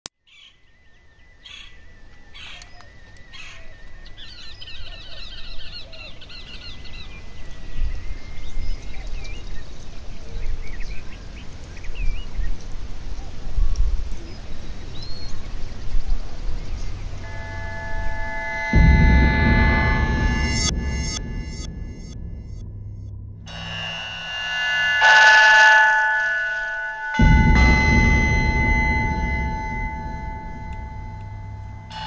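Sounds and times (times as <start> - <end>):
deep rumble: 17.1 - 25.0, 27.1 - 32.0.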